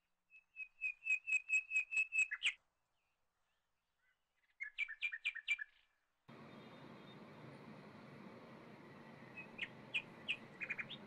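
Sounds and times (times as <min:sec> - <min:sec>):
bird chirping: 0:04.4 - 0:11.0.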